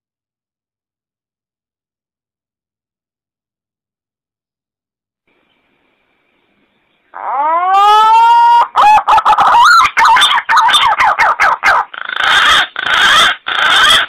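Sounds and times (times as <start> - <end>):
pigeon calls: 7.2 - 14.0.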